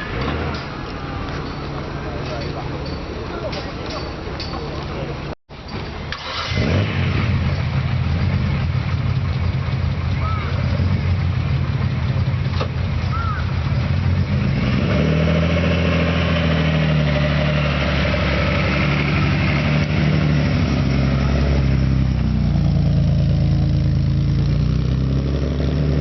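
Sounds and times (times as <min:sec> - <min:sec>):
car engine idling: 0:07.3 - 0:14.4, 0:17.8 - 0:25.3.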